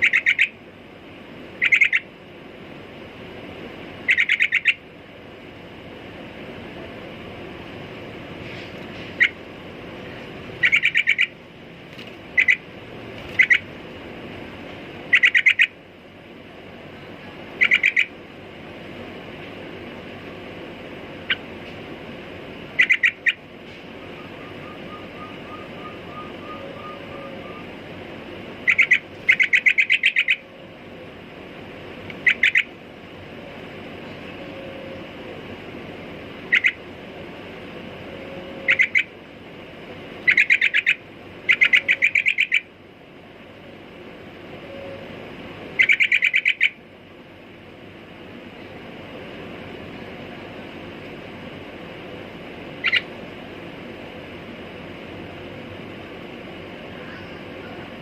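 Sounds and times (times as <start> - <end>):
bulbul calling: 0.0 - 0.6, 1.6 - 2.1, 4.0 - 4.8, 10.6 - 11.4, 12.4 - 12.7, 13.3 - 13.7, 15.1 - 15.8, 17.6 - 18.2, 22.7 - 23.4, 24.0 - 27.7, 28.6 - 30.5, 32.1 - 32.7, 36.5 - 36.8, 38.6 - 39.1, 40.2 - 42.7, 45.8 - 46.8, 52.8 - 53.1
steady background hiss: 0.0 - 58.0.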